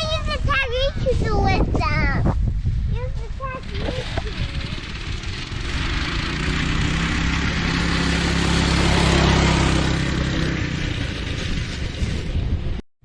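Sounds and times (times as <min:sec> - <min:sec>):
vehicle engine running: 0:03.4 - 0:12.8.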